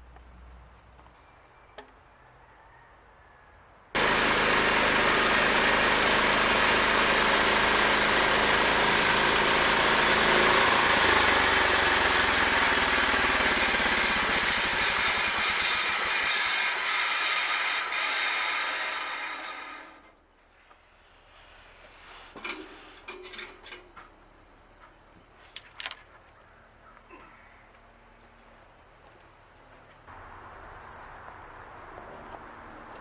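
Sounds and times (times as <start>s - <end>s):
band sawmill running: 4.0s - 20.2s.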